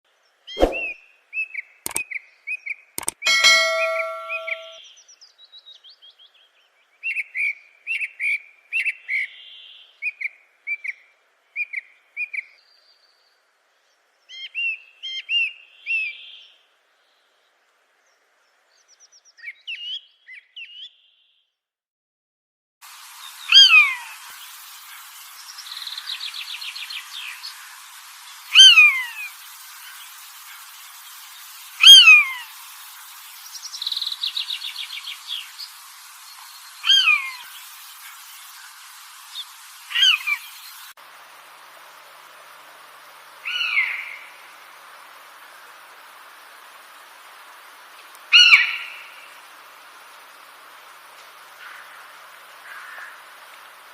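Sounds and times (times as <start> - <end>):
faint hiss: 0.1 - 20.4, 22.8 - 53.9
birds chirping: 0.6 - 1.0, 3.0 - 4.8, 23.0 - 40.9
fast bird trill: 0.6 - 1.0, 3.0 - 4.8, 23.3 - 38.2, 39.3 - 40.9
falling whistled bird calls: 0.6 - 5.0, 23.2 - 40.9.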